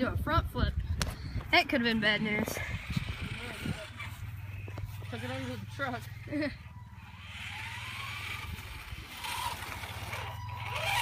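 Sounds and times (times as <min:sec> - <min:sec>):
electric motor whining: 0:02.0 - 0:11.0.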